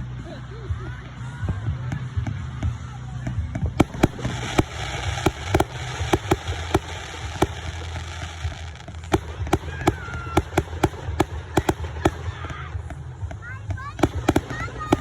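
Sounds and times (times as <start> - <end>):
low rumble: 0.7 - 15.0
fireworks bangs: 3.3 - 15.0.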